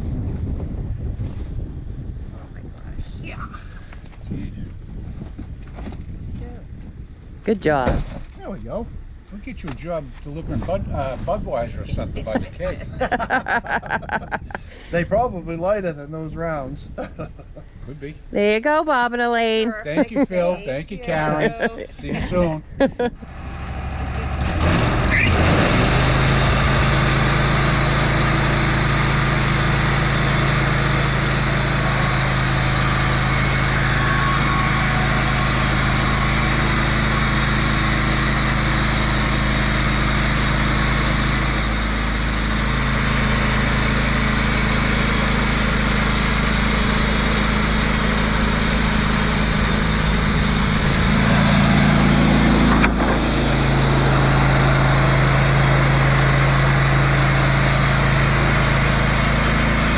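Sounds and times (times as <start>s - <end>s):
engine running steadily: 19.4s - 59.9s.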